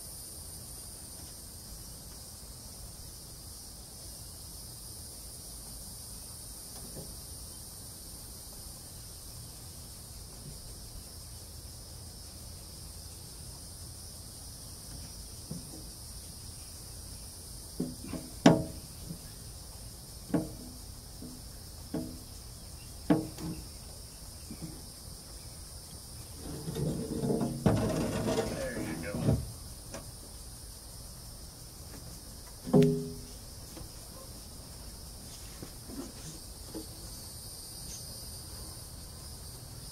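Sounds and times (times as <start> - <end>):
insect chirring: 0.0 - 39.9
sharp knocks: 17.8 - 18.8, 20.3 - 22.3, 23.0 - 23.6, 32.6 - 33.3.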